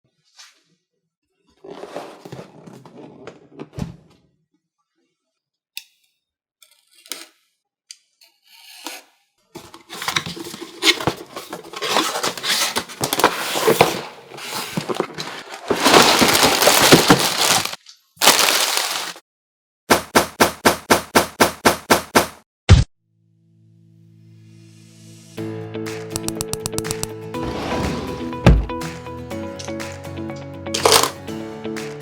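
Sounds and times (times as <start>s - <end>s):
packaging tearing and crinkling: 9.9s - 19.2s, 30.8s - 31.2s
clicks: 26.2s - 27.1s.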